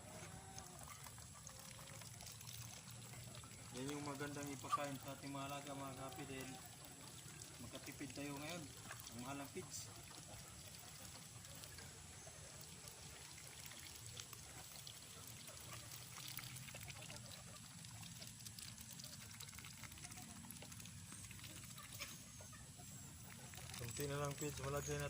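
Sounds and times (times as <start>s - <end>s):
chickens clucking softly: 3.2s - 13.2s.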